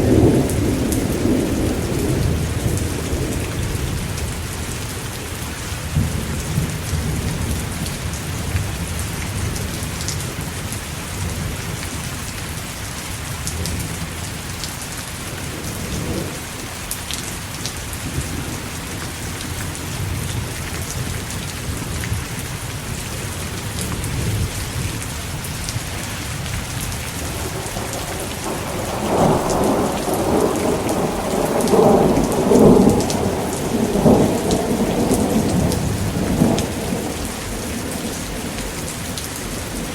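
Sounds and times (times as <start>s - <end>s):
rolling thunder: 0.0s - 4.9s, 18.0s - 39.9s
heavy rain: 0.0s - 39.9s.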